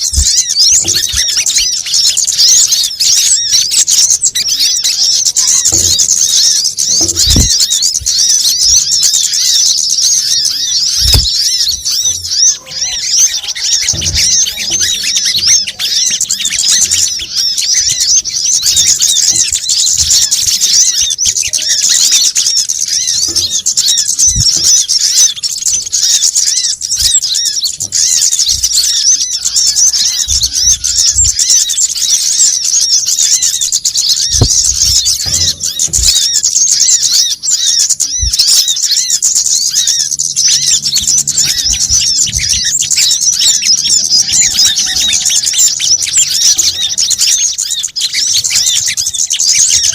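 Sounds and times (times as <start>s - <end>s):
small birds twittering: 0.0s - 49.9s.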